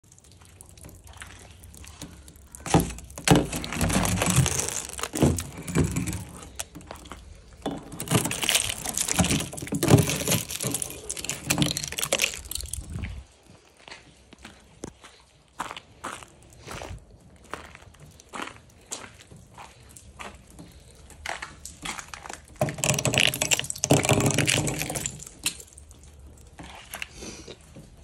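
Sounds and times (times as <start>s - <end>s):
low rumble on microphone: 12.4s - 13.3s.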